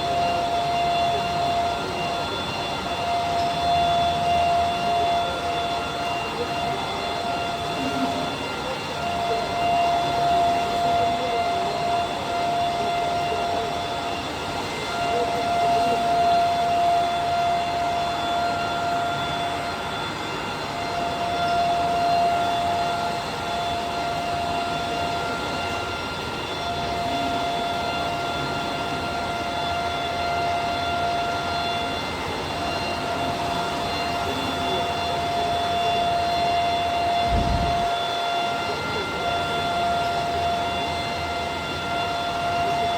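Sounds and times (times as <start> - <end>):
high-pitched machine whine: 0.0 - 42.9.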